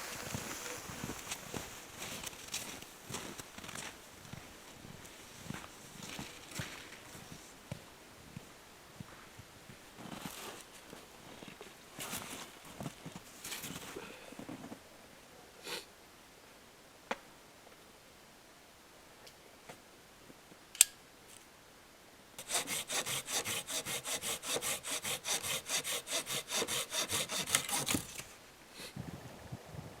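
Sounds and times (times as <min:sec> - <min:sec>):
hand saw cutting a branch: 0:22.4 - 0:28.3.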